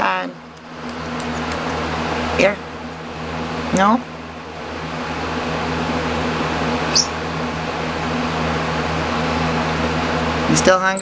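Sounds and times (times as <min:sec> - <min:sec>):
appliance hum and hiss: 0:00.0 - 0:11.0
short high chirp: 0:06.9 - 0:07.1.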